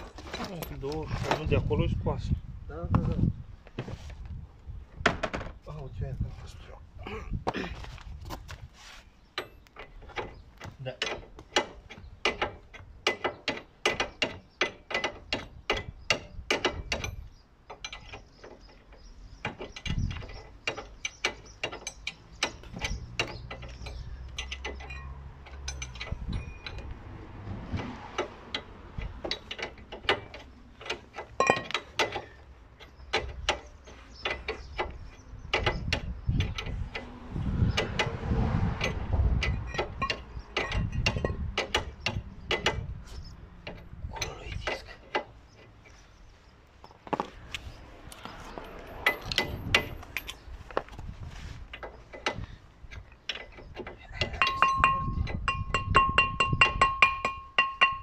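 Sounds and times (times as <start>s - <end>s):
metal tools clattering: 9.3s - 26.9s, 29.0s - 37.1s, 38.8s - 42.9s, 48.2s - 50.8s, 51.7s - 58.0s.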